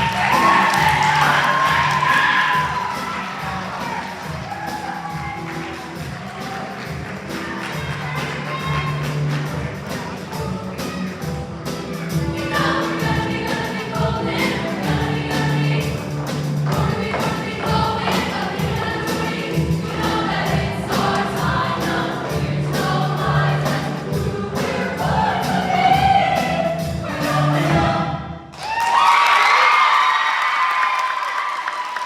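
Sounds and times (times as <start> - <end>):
steady-beat musical accompaniment: 0.0 - 28.4
choir singing: 12.1 - 28.4.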